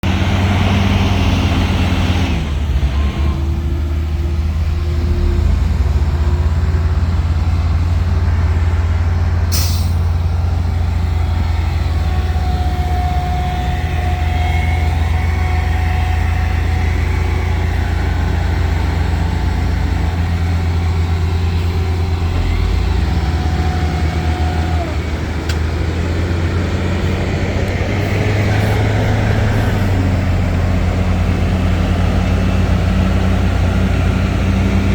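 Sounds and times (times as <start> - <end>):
heavy diesel machinery drone: 0.0 - 34.9
short sharp hiss: 9.5 - 10.1.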